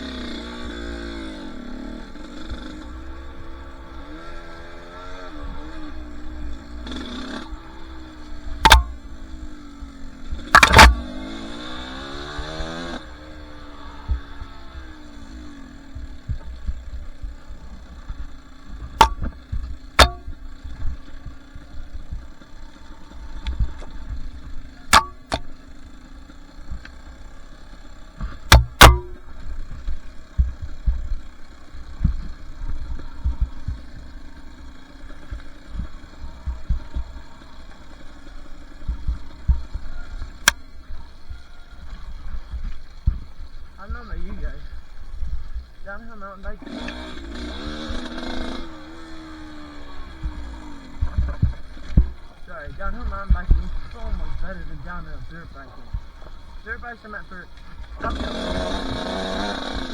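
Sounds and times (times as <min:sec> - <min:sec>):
dirt bike engine running: 0:00.0 - 0:59.9
sharp knocks: 0:08.6 - 0:09.1, 0:10.4 - 0:11.3, 0:16.0 - 0:20.9, 0:24.9 - 0:25.5, 0:28.2 - 0:31.1.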